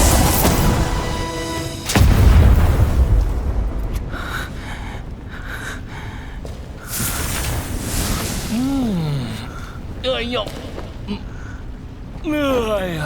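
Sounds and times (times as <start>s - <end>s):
cartoon explosion blast: 0.0s - 4.3s
deep rumble: 1.9s - 6.4s.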